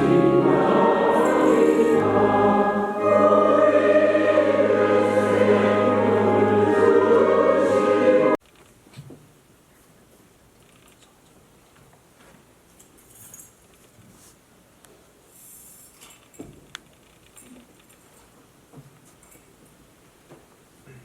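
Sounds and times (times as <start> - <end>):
choir singing a hymn: 0.0 - 8.4
held low accompaniment: 0.0 - 8.4.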